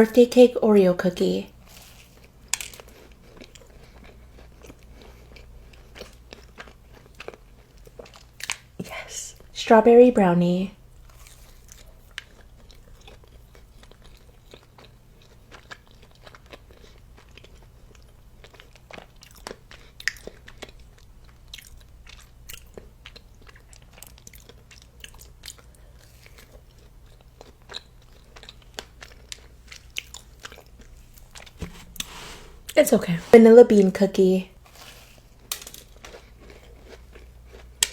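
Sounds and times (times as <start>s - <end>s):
person chewing: 18.4s - 32.8s, 35.9s - 37.9s.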